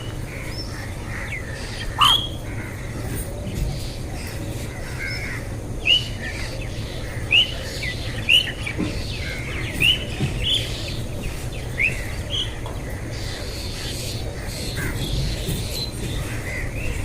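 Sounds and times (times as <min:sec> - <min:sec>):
steady low rumble: 0:00.0 - 0:17.0
small bird chirping: 0:01.4 - 0:02.4.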